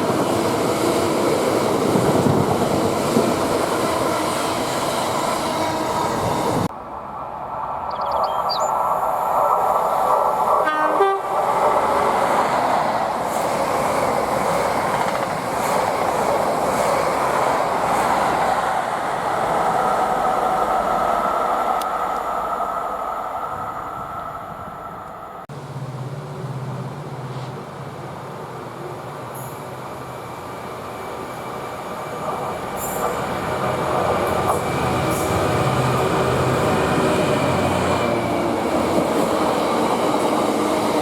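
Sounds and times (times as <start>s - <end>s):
train wheels on rails: 0.0s - 6.7s, 8.7s - 28.1s, 29.2s - 41.0s
train horn: 10.6s - 11.4s.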